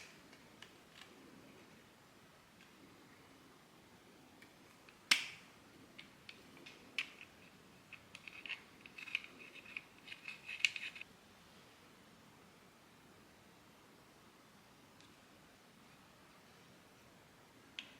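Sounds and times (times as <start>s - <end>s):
plastic part snapping: 5.1s - 5.4s
small plastic clicks and scrapes: 6.0s - 11.0s.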